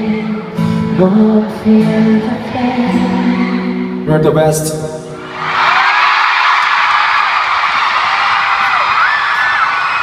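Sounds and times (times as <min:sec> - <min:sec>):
crowd screaming and cheering: 0:05.1 - 0:10.0.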